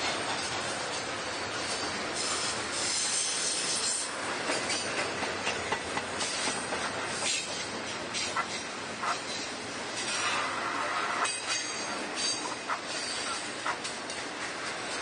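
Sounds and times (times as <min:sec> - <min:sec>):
freight train wheels knocking: 0:00.0 - 0:10.4, 0:11.1 - 0:15.0
steel wheel squeal: 0:01.6 - 0:04.9, 0:08.2 - 0:13.5.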